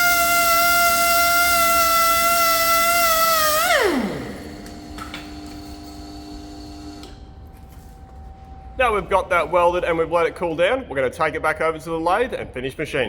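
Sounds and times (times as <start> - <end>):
power tool motor whining: 0.0 - 7.2.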